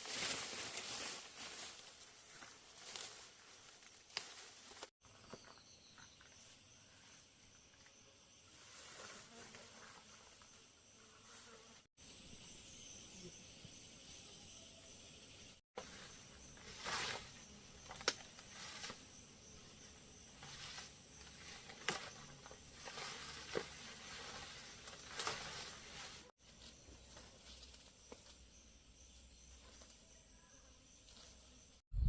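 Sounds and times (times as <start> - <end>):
leaves rustling and twigs snapping: 0.0 - 4.9, 16.6 - 19.0, 20.4 - 28.4
high insect drone: 5.5 - 31.7.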